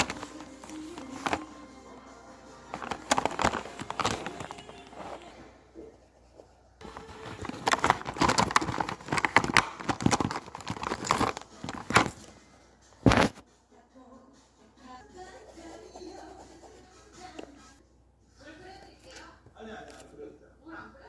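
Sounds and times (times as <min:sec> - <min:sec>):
pens scratching paper: 0:00.0 - 0:01.7, 0:02.7 - 0:12.2, 0:15.2 - 0:17.8.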